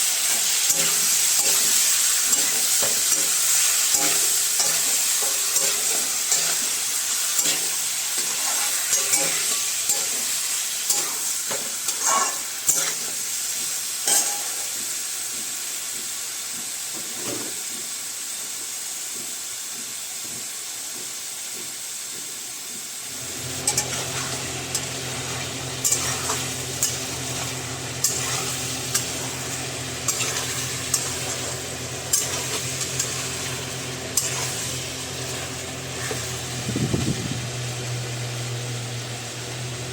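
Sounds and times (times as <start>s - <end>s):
curry sizzling in a pan: 0.0s - 39.9s
spoon stirring and scraping pan: 0.2s - 13.0s, 23.6s - 36.4s
steady low hum: 23.1s - 39.9s.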